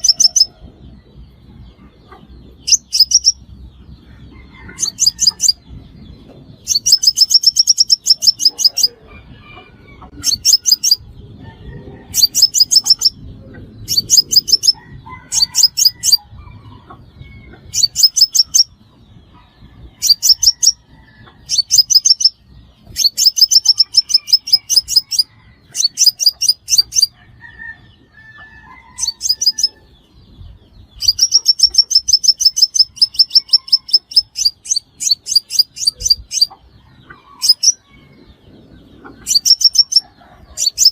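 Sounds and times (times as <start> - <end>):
sunbird chipping calls: 0.0 - 0.5, 2.1 - 3.5, 6.6 - 9.1, 10.1 - 11.2, 12.1 - 16.3, 21.4 - 27.2, 30.9 - 37.8, 39.0 - 40.9.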